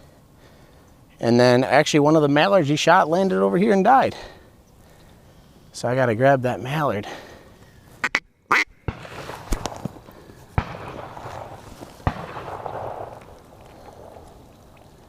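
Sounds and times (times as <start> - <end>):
ducks quacking: 8.0 - 8.7
sharp cracks: 8.1 - 15.0
rustling: 9.0 - 15.0.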